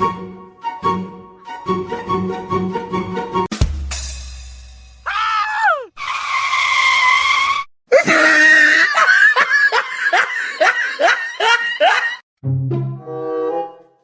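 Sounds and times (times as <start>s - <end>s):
high-pitched voice crying: 5.1s - 5.9s.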